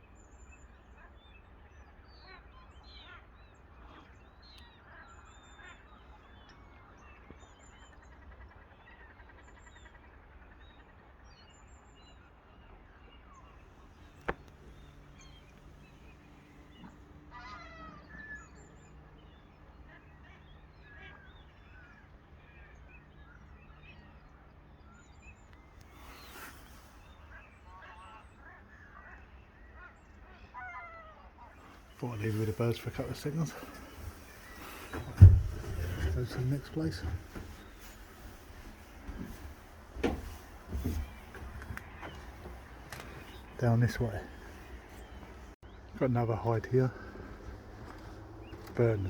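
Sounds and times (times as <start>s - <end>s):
waterfowl honking and quacking: 16.0s - 18.6s, 25.9s - 49.0s.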